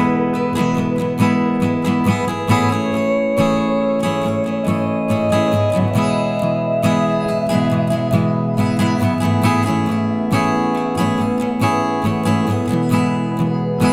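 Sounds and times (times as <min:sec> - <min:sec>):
acoustic guitar strumming: 0:00.0 - 0:13.9.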